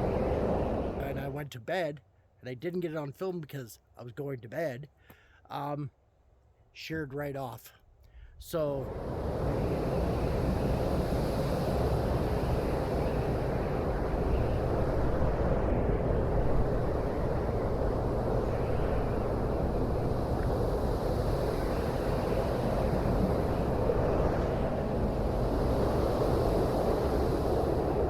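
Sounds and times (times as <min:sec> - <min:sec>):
wind noise: 0:00.0 - 0:01.4, 0:08.2 - 0:28.0.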